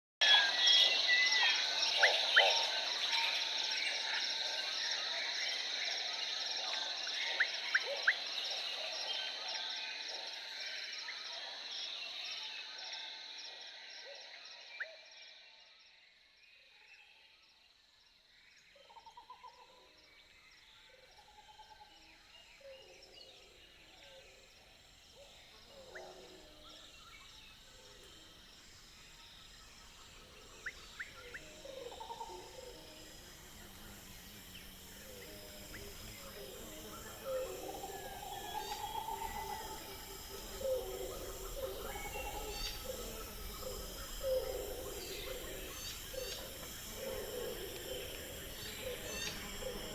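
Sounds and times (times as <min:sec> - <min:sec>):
steady high chirring: 0:27.5 - 0:49.9
bird and animal calls: 0:30.0 - 0:49.9.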